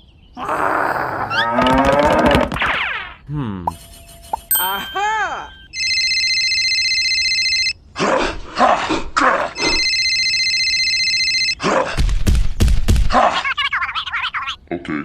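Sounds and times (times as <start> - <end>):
electronic telephone ringtone: 3.7 - 7.8, 9.6 - 11.6.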